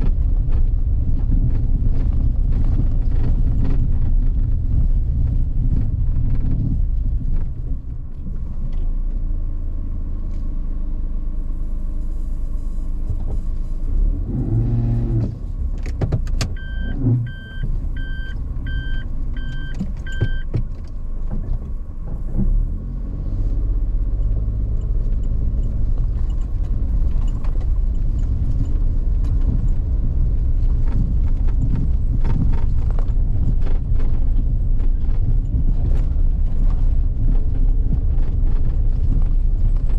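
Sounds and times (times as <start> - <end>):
car driving rumble: 0.0 - 39.9
short electronic beeps: 16.6 - 20.5.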